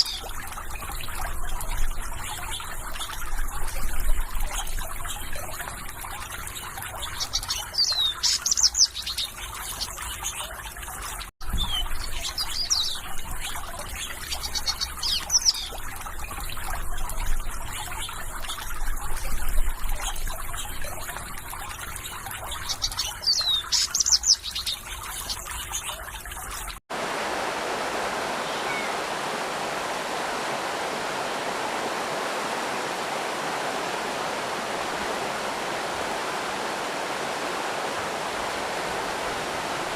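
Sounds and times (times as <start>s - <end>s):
small birds chirping: 0.0s - 3.6s, 4.2s - 10.6s, 11.5s - 17.0s, 22.0s - 26.0s, 28.3s - 29.2s
rush of flowing water: 0.0s - 24.4s, 26.4s - 39.9s
water trickling and burbling: 0.0s - 39.9s.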